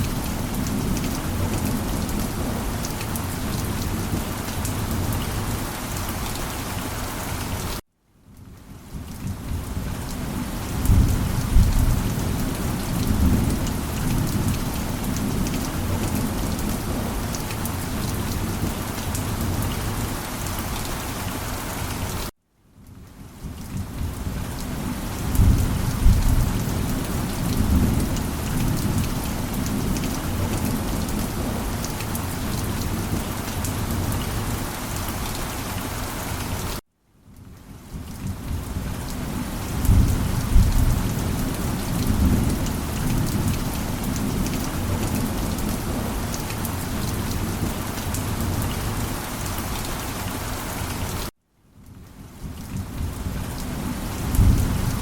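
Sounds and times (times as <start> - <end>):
heavy rain falling: 0.0 - 7.8, 8.4 - 22.3, 23.2 - 36.8, 37.4 - 51.3, 51.9 - 55.0
rolling thunder: 25.2 - 31.4.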